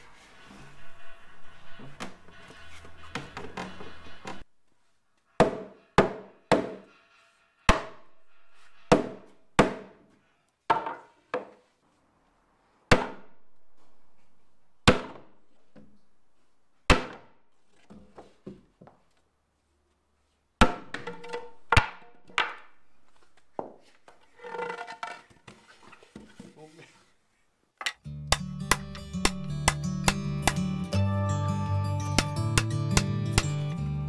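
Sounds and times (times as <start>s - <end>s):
wooden mallet striking timber beam: 5.4s - 6.9s, 7.7s - 8.0s, 8.9s - 10.0s, 12.9s - 13.4s, 14.8s - 15.3s, 16.9s - 17.3s, 20.6s - 22.7s, 27.8s - 30.7s.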